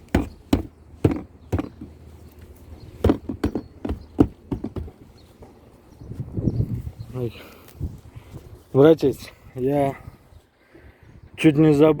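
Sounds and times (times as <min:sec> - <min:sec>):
plastic panel being knocked by hand: 0:00.1 - 0:01.9, 0:03.0 - 0:05.0.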